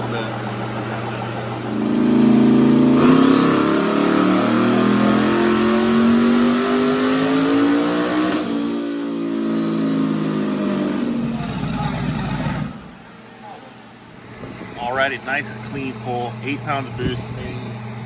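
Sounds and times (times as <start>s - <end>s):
truck engine revving: 1.5s - 13.1s
turbo whistle: 1.7s - 6.4s.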